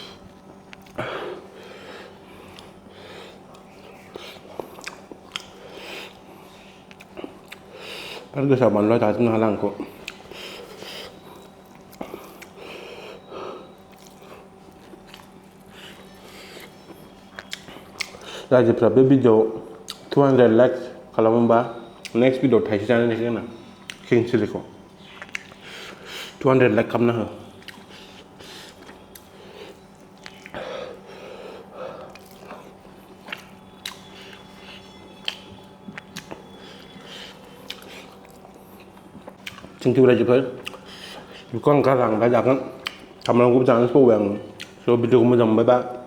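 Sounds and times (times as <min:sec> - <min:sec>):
person chewing food: 0:00.0 - 0:08.4, 0:09.3 - 0:18.5, 0:19.7 - 0:20.2, 0:23.8 - 0:24.1, 0:24.9 - 0:26.4, 0:27.4 - 0:43.4, 0:44.5 - 0:44.9
breathing through nose: 0:01.0 - 0:04.6, 0:05.5 - 0:08.3, 0:10.2 - 0:11.3, 0:25.6 - 0:26.4, 0:30.5 - 0:32.2, 0:40.8 - 0:41.5
lip smacks: 0:17.3 - 0:18.4, 0:25.0 - 0:25.9, 0:27.6 - 0:29.3, 0:32.1 - 0:39.9, 0:40.6 - 0:41.9, 0:42.7 - 0:43.4.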